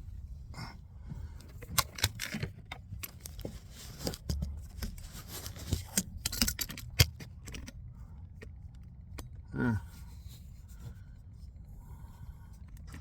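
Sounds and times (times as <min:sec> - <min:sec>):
objects being handled clattering: 0:01.5 - 0:07.7.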